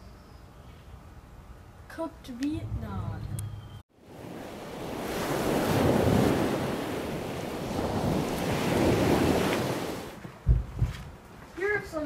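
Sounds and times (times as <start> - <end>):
ocean surf washing in: 2.6 - 10.2.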